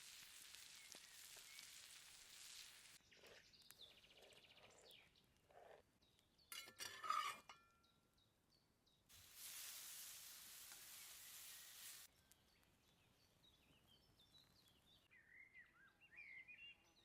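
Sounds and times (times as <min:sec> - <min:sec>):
soft steady hiss: 0:00.0 - 0:03.0, 0:09.1 - 0:12.4.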